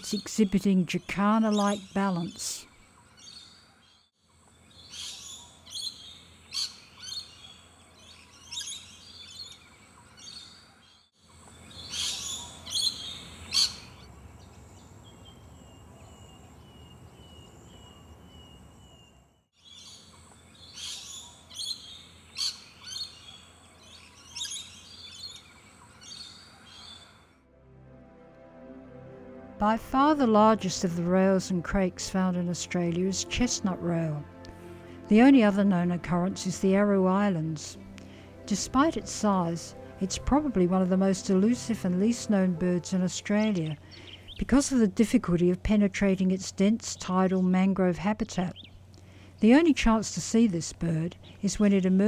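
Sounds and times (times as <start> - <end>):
birds calling sharply: 11.7 - 27.1.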